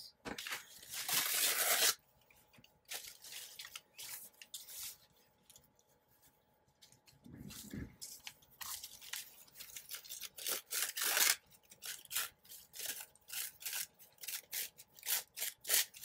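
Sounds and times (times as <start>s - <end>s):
paper rustling: 0.3s - 12.0s.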